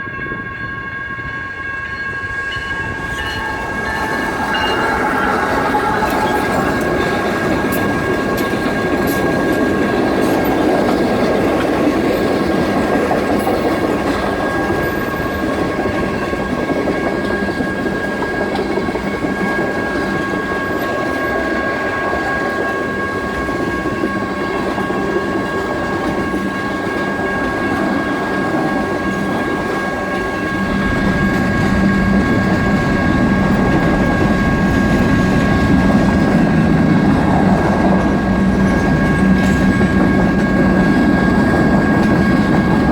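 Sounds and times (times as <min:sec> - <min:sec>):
crossing bells: 0:00.0 - 0:42.9
train wheels clattering on rails: 0:02.2 - 0:42.9
low drone: 0:29.9 - 0:40.7.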